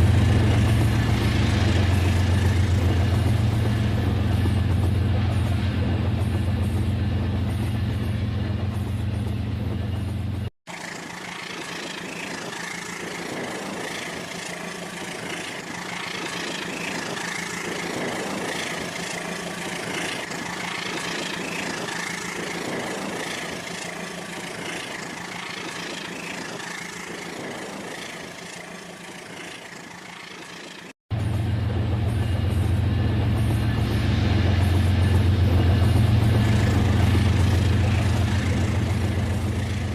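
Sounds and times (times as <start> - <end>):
toy train motor hum: 10.8 - 30.9.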